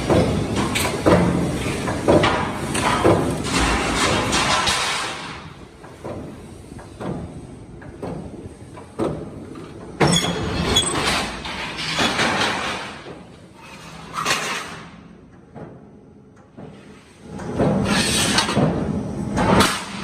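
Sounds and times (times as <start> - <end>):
metal knocks and clanks: 0.0 - 5.4, 9.8 - 14.8.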